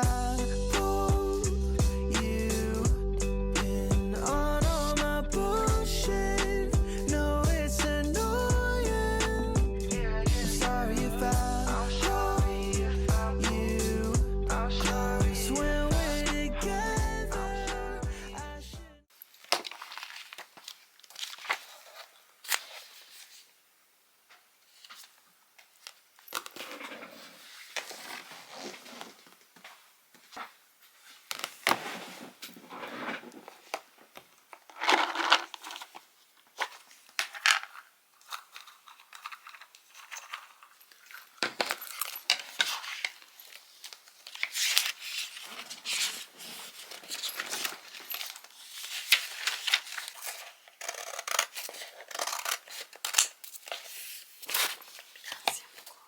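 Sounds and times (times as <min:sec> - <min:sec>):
small objects rustling and clinking: 0:19.2 - 0:21.7, 0:34.5 - 0:50.4.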